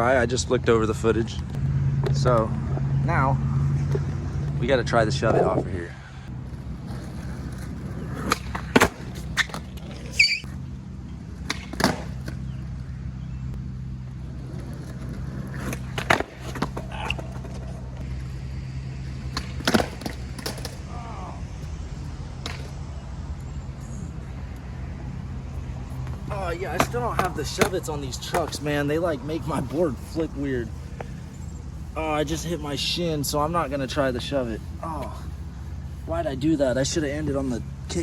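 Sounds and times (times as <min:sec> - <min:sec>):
skateboard rolling on concrete: 0:03.6 - 0:38.0
skateboard clacking on ground: 0:06.9 - 0:10.2, 0:11.4 - 0:12.4, 0:14.5 - 0:18.0, 0:19.3 - 0:20.8, 0:26.4 - 0:28.6.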